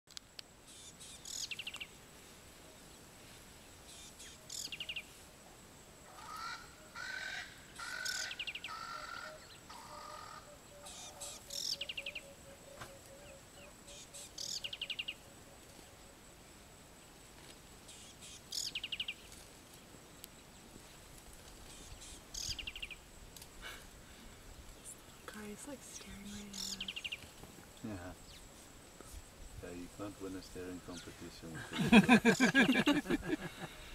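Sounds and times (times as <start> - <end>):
other bird calls: 6.1 - 15.2, 21.6 - 23.0, 25.0 - 27.3.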